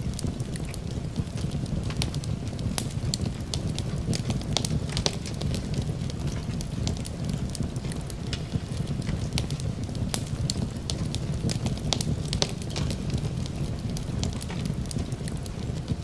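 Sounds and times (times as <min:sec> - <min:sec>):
low fire rumble: 0:00.0 - 0:16.0
wood fire crackling and popping: 0:00.0 - 0:16.0.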